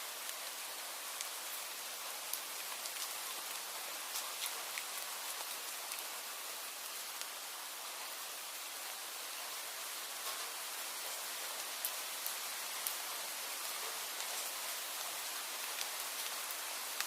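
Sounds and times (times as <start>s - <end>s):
raindrops ticking on a surface: 0.0s - 17.0s
steady rain hiss: 0.0s - 17.0s.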